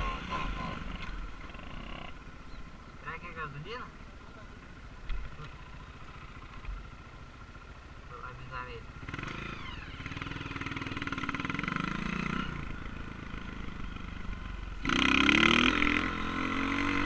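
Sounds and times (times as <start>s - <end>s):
dirt bike engine revving: 0.0s - 2.2s, 8.9s - 17.0s.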